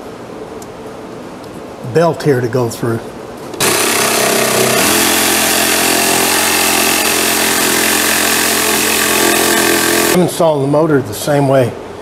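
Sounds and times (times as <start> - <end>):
power tool cutting plywood: 3.6 - 10.2.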